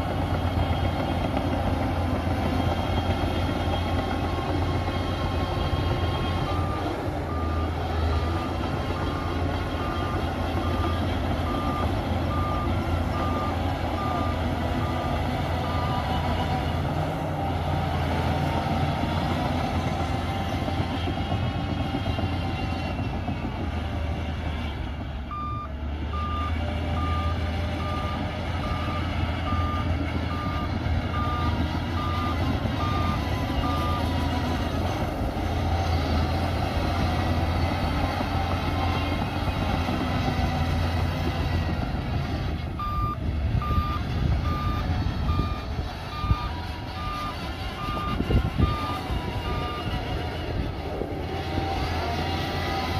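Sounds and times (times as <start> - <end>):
heavy diesel machinery running: 0.0 - 52.9
reversing alarm beeping: 2.5 - 17.0, 25.3 - 35.0, 42.8 - 50.4.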